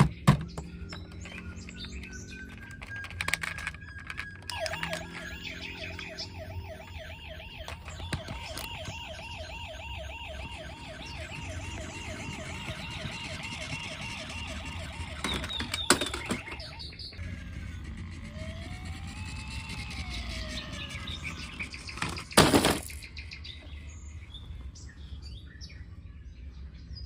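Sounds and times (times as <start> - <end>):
toy siren warbling: 0.5 - 23.1
sharp clicks: 0.7 - 6.3.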